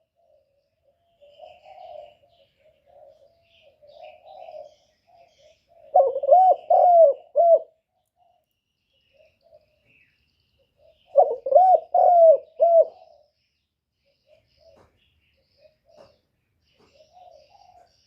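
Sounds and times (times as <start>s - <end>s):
dove cooing: 0.0s - 7.8s, 10.7s - 13.4s, 14.1s - 18.0s
small birds chirping: 0.0s - 18.0s.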